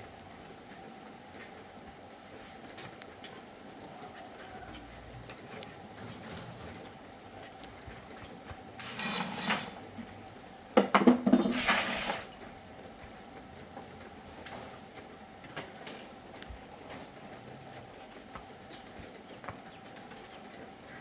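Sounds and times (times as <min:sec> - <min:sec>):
faint steady background noise: 0:00.0 - 0:21.0
metallic clattering and clinking: 0:08.8 - 0:09.8.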